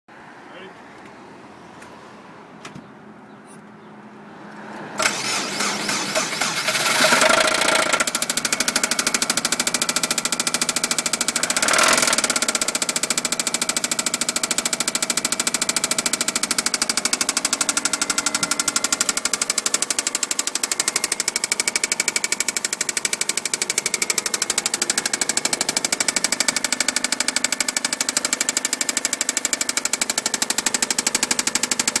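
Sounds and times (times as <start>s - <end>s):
car engine starting: 3.7s - 32.0s
engine revving: 4.6s - 32.0s
engine knocking: 5.0s - 32.0s.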